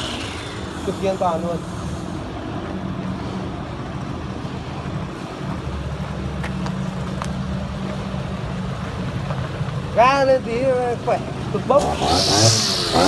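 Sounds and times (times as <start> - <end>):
brush cutter engine running: 0.0 - 2.7, 11.7 - 13.0.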